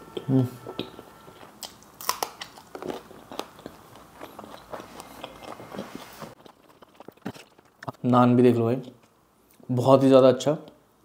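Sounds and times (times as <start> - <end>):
chewing: 0.7 - 8.1
crunching raw chilli: 0.7 - 8.1.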